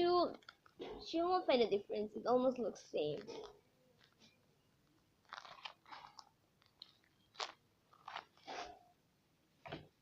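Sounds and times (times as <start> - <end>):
paper and tape crinkling: 3.1 - 8.8.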